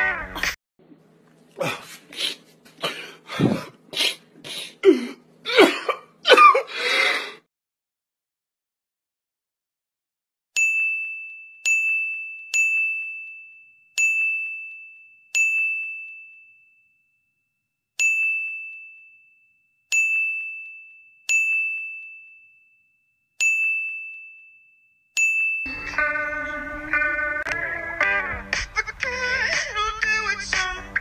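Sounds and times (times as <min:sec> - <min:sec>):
notification dings: 0:18.0 - 0:19.0
music: 0:25.7 - 0:31.0.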